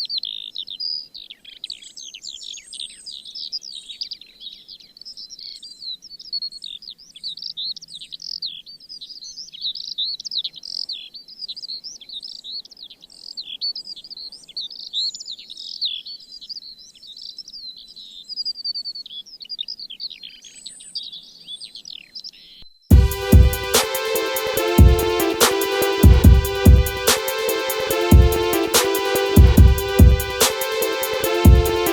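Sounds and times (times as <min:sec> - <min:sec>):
songbirds chirping: 0:00.0 - 0:22.7.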